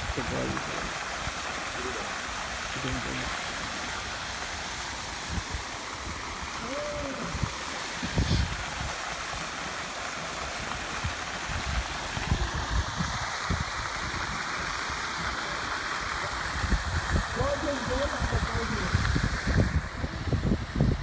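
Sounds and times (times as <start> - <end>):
waterfall rushing: 0.0 - 21.0
wind buffeting microphone: 5.2 - 9.1, 11.0 - 15.3, 16.3 - 21.0.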